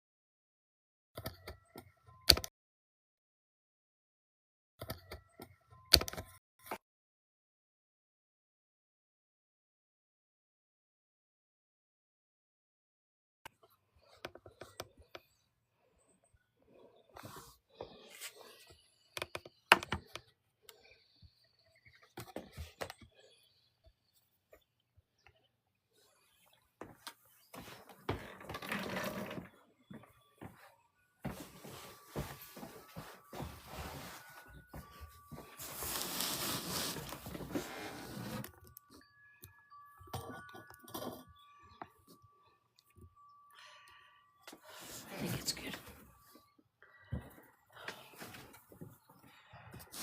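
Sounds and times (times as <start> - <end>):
objects being handled: 31.2 - 39.0.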